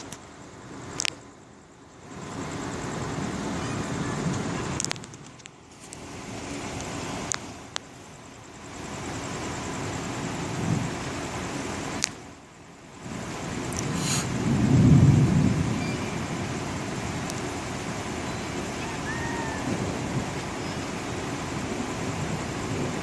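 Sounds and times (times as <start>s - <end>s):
rain rushing: 2.0s - 23.0s
storm wind gusting: 13.0s - 23.0s.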